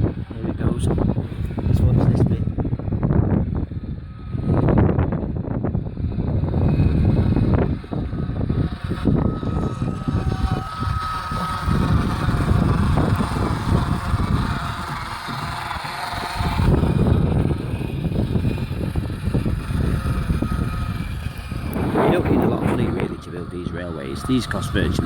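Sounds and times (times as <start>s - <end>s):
wind buffeting microphone: 0.0s - 25.0s
model train running on track: 6.4s - 25.0s.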